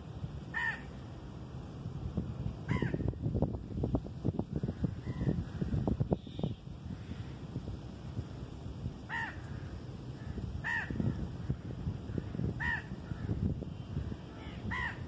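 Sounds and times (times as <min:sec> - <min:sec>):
bird calling: 0:00.5 - 0:00.9, 0:04.9 - 0:07.4.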